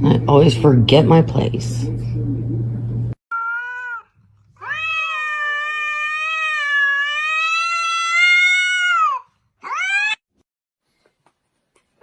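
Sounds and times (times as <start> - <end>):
cat meowing: 3.3 - 10.2.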